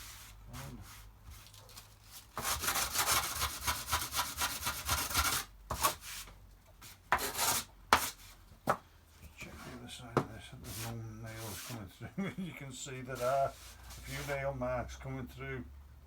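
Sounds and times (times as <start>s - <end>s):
sandpaper rubbing on wood: 2.4s - 6.2s, 10.7s - 11.8s, 13.2s - 14.4s.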